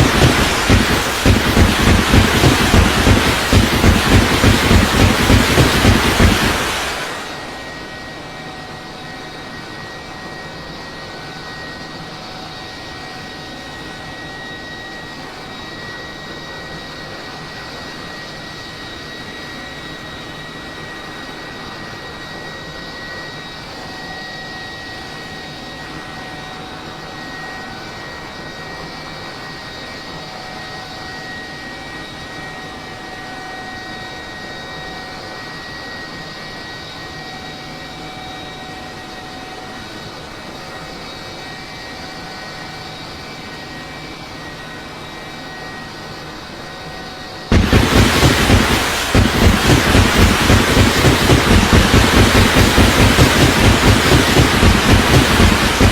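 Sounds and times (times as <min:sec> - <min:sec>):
rapidly pulsing rushing noise: 0:00.0 - 0:07.6, 0:47.5 - 0:55.9
high-pitched whine: 0:00.0 - 0:08.8, 0:47.5 - 0:55.9
aircraft engine droning: 0:00.0 - 0:55.9.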